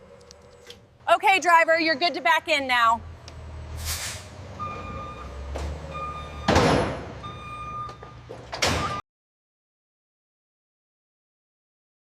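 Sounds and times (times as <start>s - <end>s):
reversing alarm beeping: 4.6s - 9.0s.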